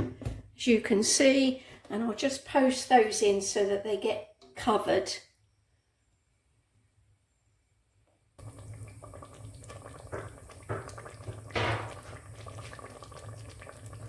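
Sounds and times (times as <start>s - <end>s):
curry sauce bubbling: 8.4s - 14.0s
hissing splashes: 8.4s - 14.0s.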